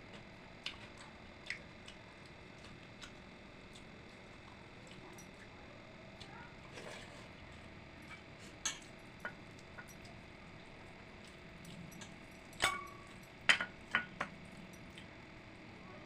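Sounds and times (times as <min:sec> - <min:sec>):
dishes clinking: 0:08.6 - 0:10.1, 0:11.9 - 0:14.3.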